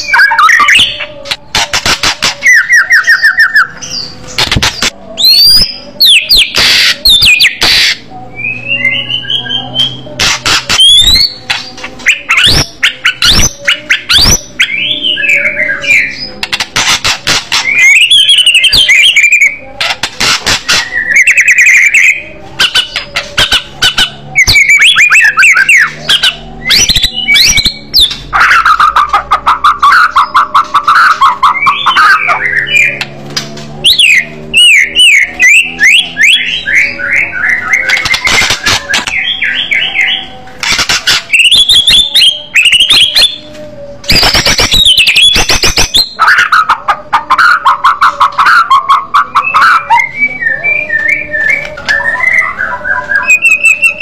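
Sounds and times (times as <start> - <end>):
songbird singing loudly: 2.4 - 4.3, 17.5 - 19.9, 20.7 - 33.2, 33.8 - 43.5, 44.1 - 54.0.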